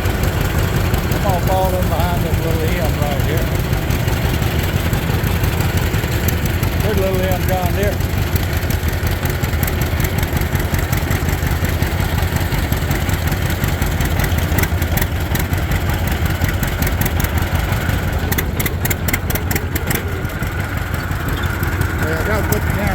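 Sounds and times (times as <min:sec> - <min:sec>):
tractor engine running: 0:00.0 - 0:22.9
quick run of clicks: 0:18.0 - 0:22.0.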